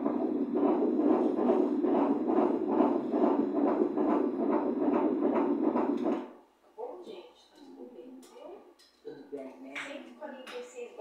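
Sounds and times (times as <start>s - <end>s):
fetal heartbeat whooshing pulse: 0.0s - 6.4s.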